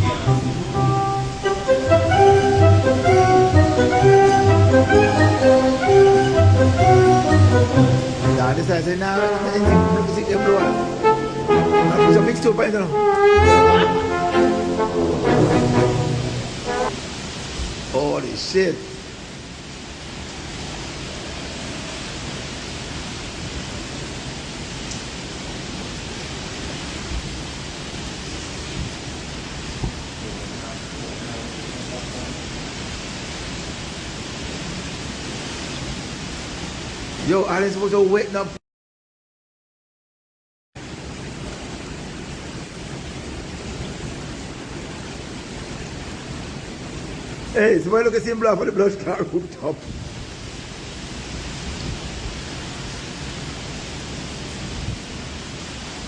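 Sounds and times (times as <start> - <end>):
strong wind: 0.0 - 6.0, 10.6 - 37.3, 49.2 - 56.0
heavy rain: 0.0 - 38.6, 40.8 - 56.0.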